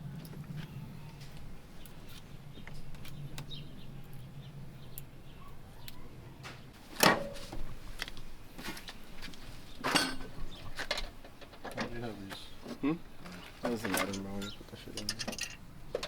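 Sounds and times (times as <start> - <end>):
parts clicking and knocking: 9.8 - 16.0.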